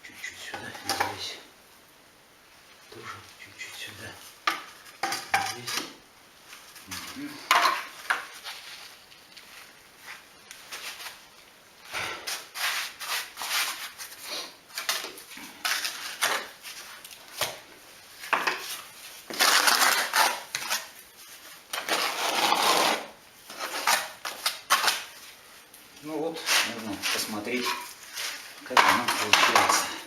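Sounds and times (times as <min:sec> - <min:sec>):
trowel scraping mortar: 0:12.2 - 0:17.0, 0:18.3 - 0:21.0, 0:21.7 - 0:25.1, 0:26.4 - 0:30.0.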